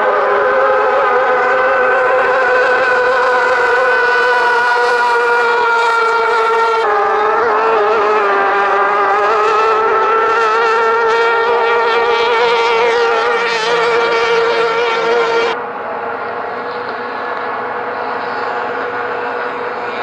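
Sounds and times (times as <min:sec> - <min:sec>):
outboard motor running hard: 0:00.0 - 0:20.0.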